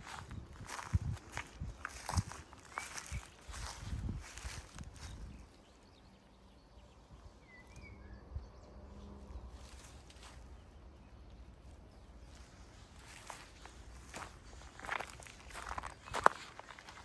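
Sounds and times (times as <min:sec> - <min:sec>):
faint bird chirp: 0:00.2 - 0:17.0
soft footsteps: 0:12.3 - 0:17.0.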